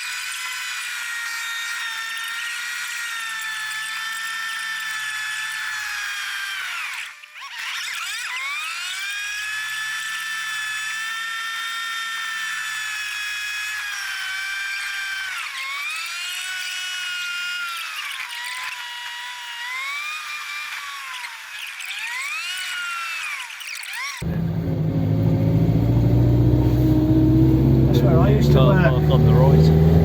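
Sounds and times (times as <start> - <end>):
car drivetrain whine: 24.2 - 30.0.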